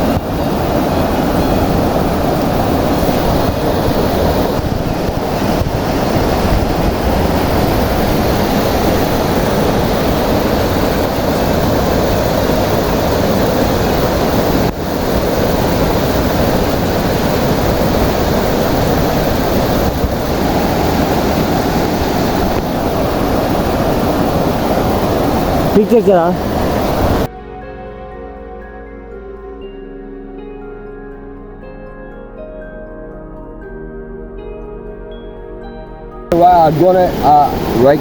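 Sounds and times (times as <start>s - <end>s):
waterfall rushing: 0.0s - 27.3s, 36.3s - 38.0s.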